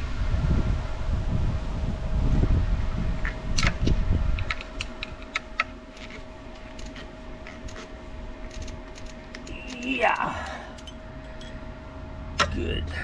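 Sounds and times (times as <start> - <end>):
wind buffeting the microphone: 0.0 - 9.4
faint steady hum: 0.0 - 13.0
light irregular clicks and taps: 4.5 - 11.6.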